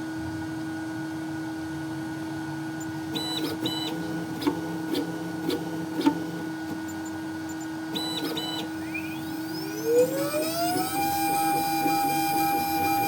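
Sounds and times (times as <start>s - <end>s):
milling machine hum: 2.6s - 13.0s
spindle motor whine: 2.7s - 13.0s.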